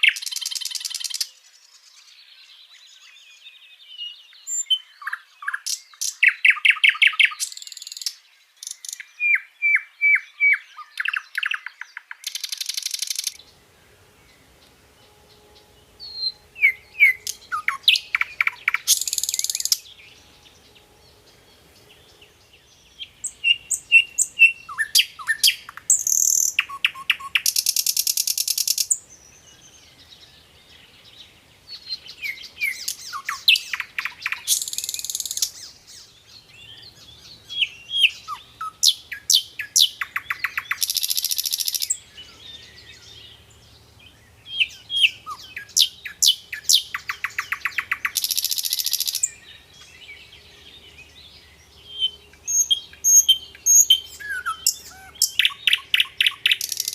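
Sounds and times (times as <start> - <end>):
flycatcher singing: 4.2 - 56.9
buzzy bird trill: 12.3 - 29.0, 44.6 - 49.4.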